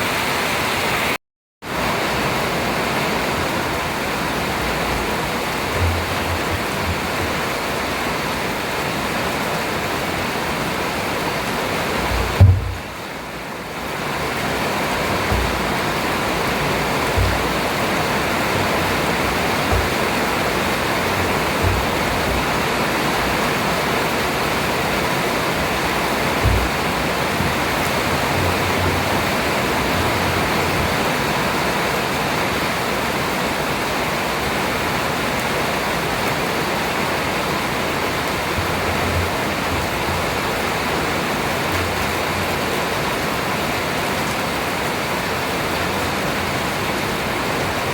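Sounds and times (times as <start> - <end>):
heavy rain falling: 0.0 - 47.9
low thumps: 4.2 - 7.9, 11.8 - 13.4, 14.0 - 23.8, 25.5 - 31.1.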